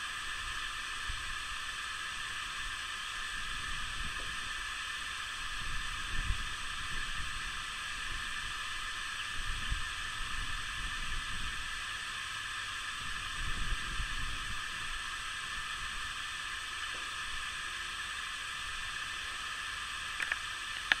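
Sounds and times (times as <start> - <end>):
steady snowstorm hiss: 0.0 - 21.0
wind rumbling on microphone: 5.6 - 8.3, 13.0 - 14.9.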